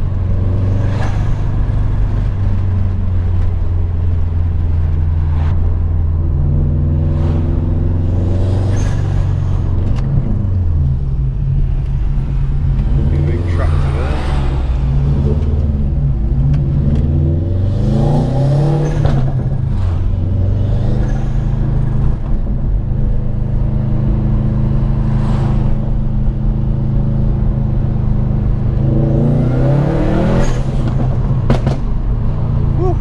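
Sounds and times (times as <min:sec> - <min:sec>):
car engine heard from cabin: 0:09.4 - 0:33.0.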